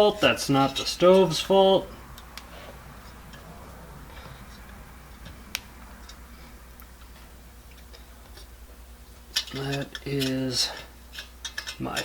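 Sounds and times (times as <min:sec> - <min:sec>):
low steady hum: 0:00.0 - 0:12.0
clicks of metal stove parts: 0:09.3 - 0:12.0.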